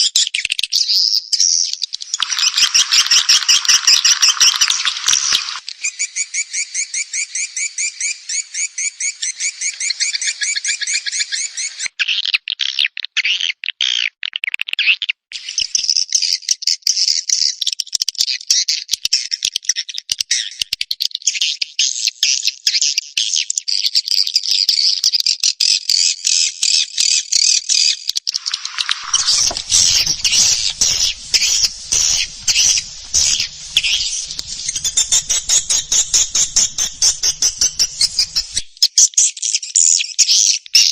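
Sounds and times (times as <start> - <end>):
swiftlets chirping and twittering: 2.1 - 11.0, 28.3 - 38.7
pulsing call with lower buzz: 28.4 - 38.6.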